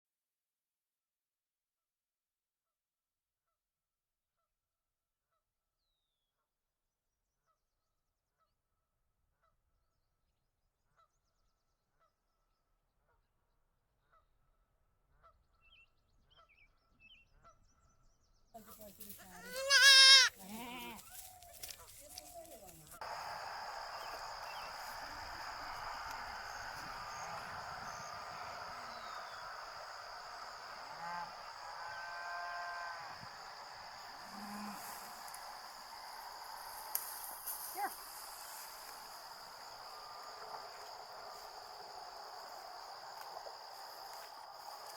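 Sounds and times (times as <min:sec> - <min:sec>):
farm animal calling: 0:18.6 - 0:35.8
insects chirring: 0:18.6 - 0:44.9.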